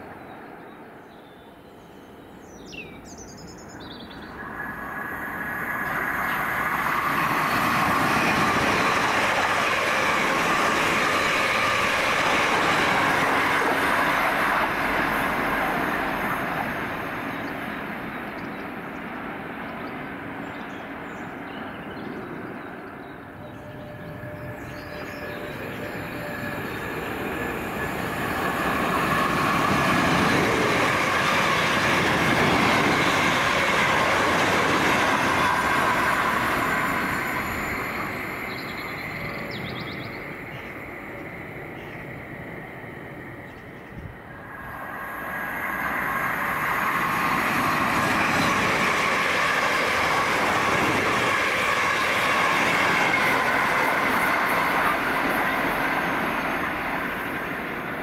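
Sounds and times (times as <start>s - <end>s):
train rushing past on rails: 0.0s - 58.0s
bird chirps: 37.7s - 40.9s.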